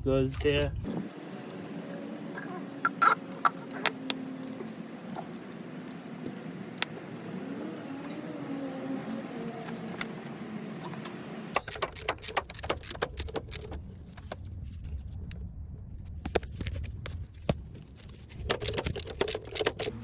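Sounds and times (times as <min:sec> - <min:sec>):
metal items clicking and clinking: 0:11.6 - 0:14.2, 0:18.0 - 0:20.0.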